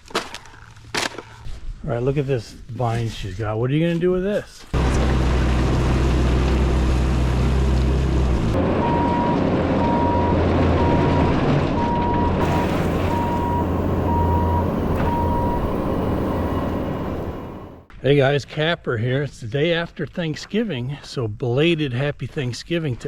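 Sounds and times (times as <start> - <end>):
diesel engine running: 4.8 - 17.9
reverse alarm beeping: 8.8 - 17.9.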